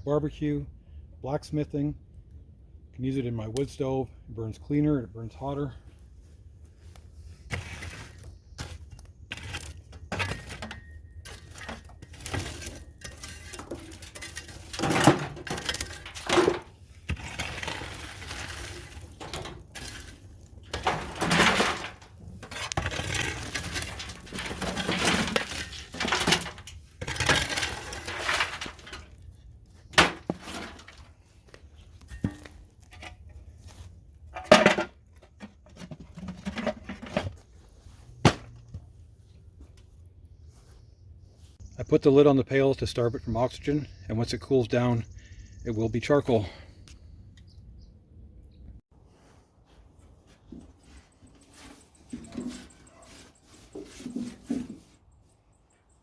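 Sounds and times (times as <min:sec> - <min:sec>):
charcoal being raked: 0:06.8 - 0:38.3, 0:50.4 - 0:55.0
charcoal clattering against metal: 0:07.5 - 0:37.5.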